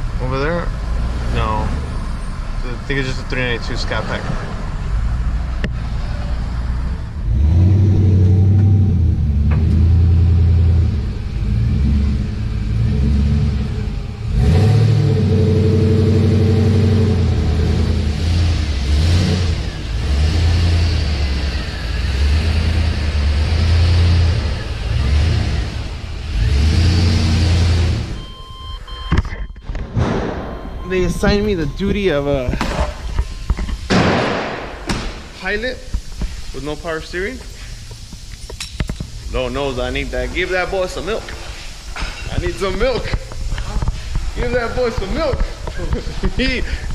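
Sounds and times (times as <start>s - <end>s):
engine revving and accelerating: 6.0s - 28.2s.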